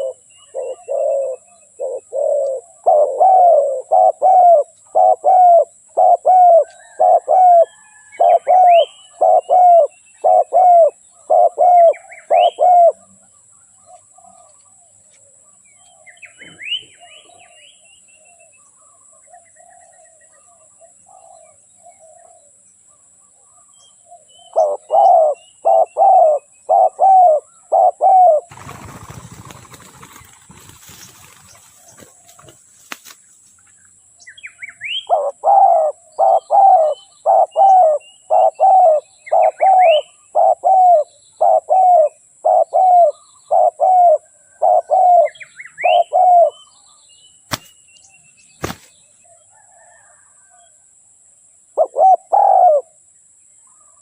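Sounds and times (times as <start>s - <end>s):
dove cooing: 0.0s - 13.1s, 24.5s - 32.6s, 34.9s - 46.6s, 51.8s - 53.0s
small birds chirping: 0.0s - 50.0s.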